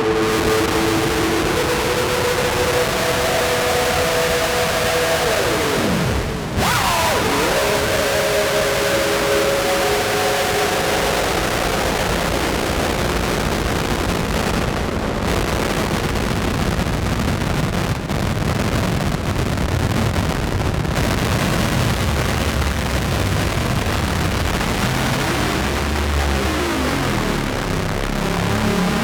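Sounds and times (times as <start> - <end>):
noisy synthesizer drone: 0.0 - 18.1, 20.2 - 29.0.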